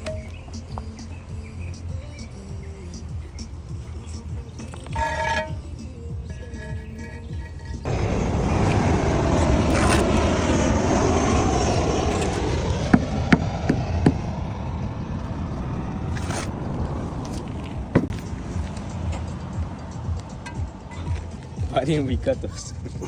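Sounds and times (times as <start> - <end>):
power tool scraping: 4.0 - 5.8, 6.5 - 14.6, 15.2 - 19.3
sharp knocks: 12.8 - 14.3, 17.9 - 18.3.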